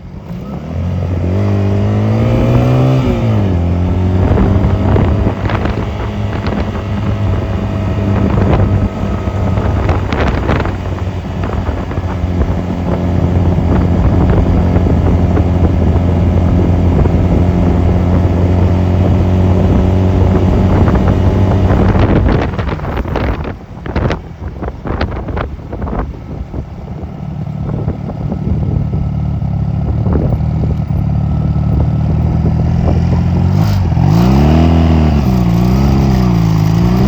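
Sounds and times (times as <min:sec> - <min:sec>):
motorcycle engine running: 0:00.0 - 0:37.0
wind noise on microphone: 0:00.0 - 0:37.0.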